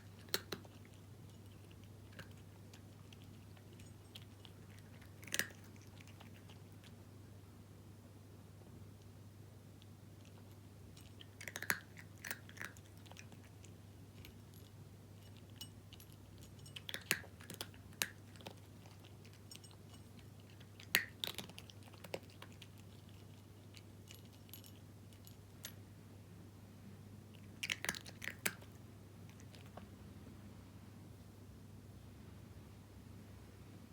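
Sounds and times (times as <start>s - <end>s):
cat crunching dry kibble: 0.0s - 7.0s, 9.8s - 25.8s, 27.3s - 29.9s.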